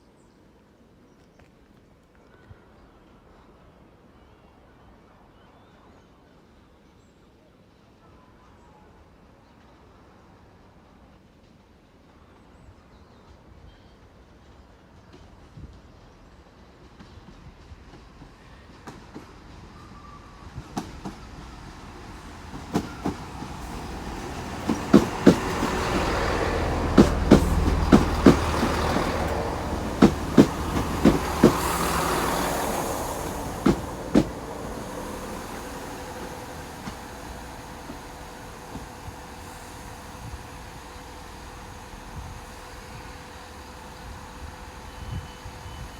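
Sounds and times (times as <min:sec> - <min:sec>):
train rumble: 0:09.8 - 0:45.9
train wheels clicking over rail joints: 0:20.5 - 0:40.3
diesel engine hum: 0:21.6 - 0:40.0.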